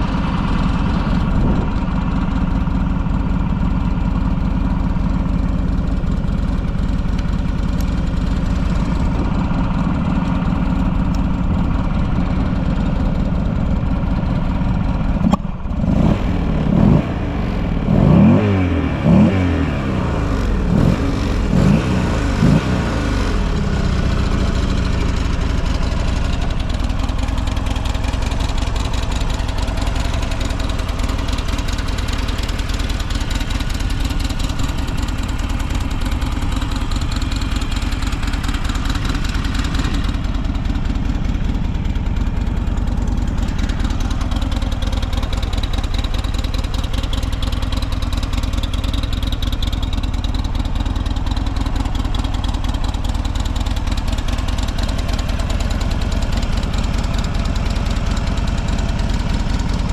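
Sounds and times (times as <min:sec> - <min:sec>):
motorcycle engine idling: 0:00.0 - 0:59.9
engine revving: 0:15.8 - 0:24.8.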